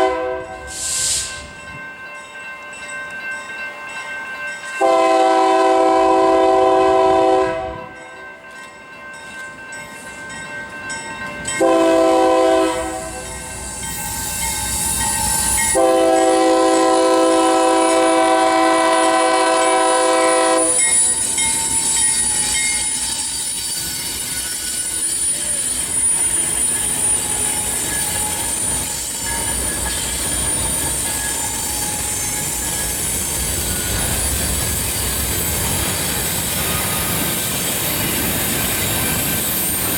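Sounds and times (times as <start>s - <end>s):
locomotive air horn: 0.0s - 1.3s, 4.8s - 7.9s, 11.6s - 13.3s, 15.7s - 20.9s
rumble of passing train cars: 0.0s - 39.9s
train wheels squealing: 0.6s - 1.8s, 12.8s - 39.9s.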